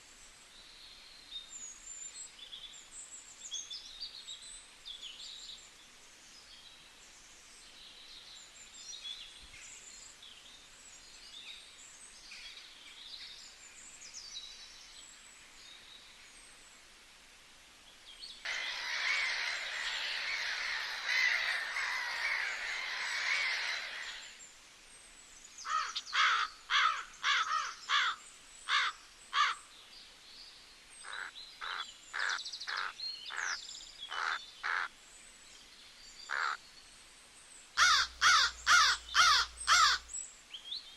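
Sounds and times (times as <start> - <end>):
dense bird chatter: 18.5 - 24.4, 31.0 - 34.9, 37.8 - 40.2
harsh repeated bird calls: 18.5 - 24.4, 37.8 - 40.2
high bird chirps: 18.5 - 24.4, 37.8 - 40.0.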